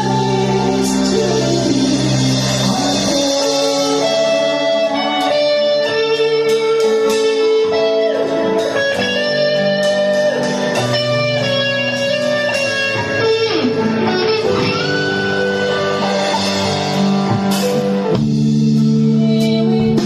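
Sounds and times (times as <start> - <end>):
band music: 0.0 - 20.0
electric guitar bent notes: 0.0 - 20.0.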